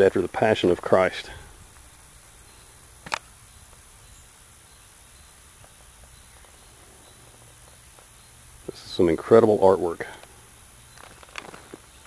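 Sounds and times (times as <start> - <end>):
high-pitched insect drone: 0.0 - 12.0
sharp click: 3.0 - 3.3.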